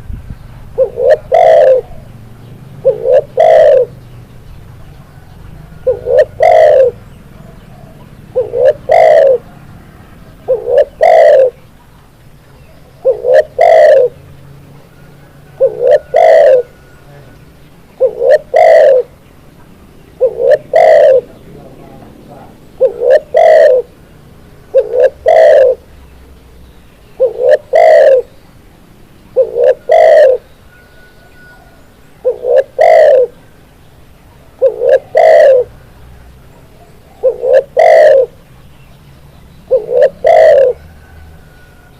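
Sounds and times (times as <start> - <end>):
dove cooing: 0.8 - 4.0, 4.7 - 11.8, 12.5 - 19.2, 20.0 - 25.9, 27.2 - 28.4, 29.3 - 33.6, 34.3 - 35.9, 36.5 - 38.5, 39.7 - 41.9.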